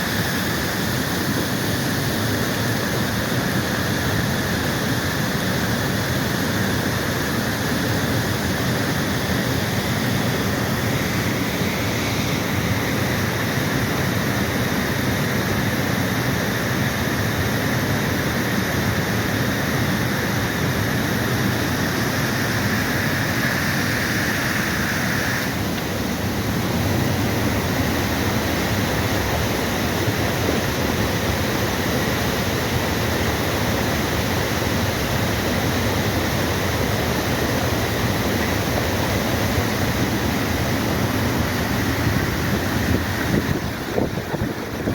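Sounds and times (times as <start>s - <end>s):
heavy rain pouring: 17.0s - 44.9s.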